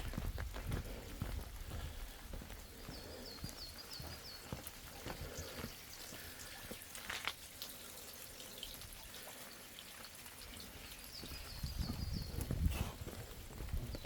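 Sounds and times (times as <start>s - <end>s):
footsteps on forest path: 0.0s - 7.4s, 10.6s - 14.0s
bird chirping: 2.6s - 7.1s, 10.5s - 12.6s.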